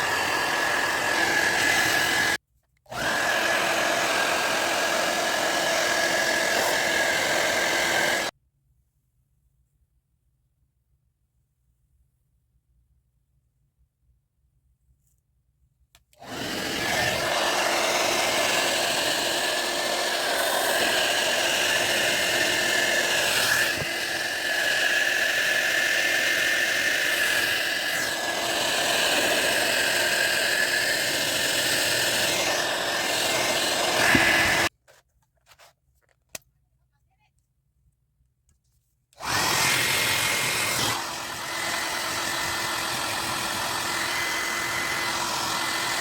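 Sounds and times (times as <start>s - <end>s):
hair dryer blowing: 0.0s - 8.3s, 16.2s - 34.7s, 39.2s - 46.0s.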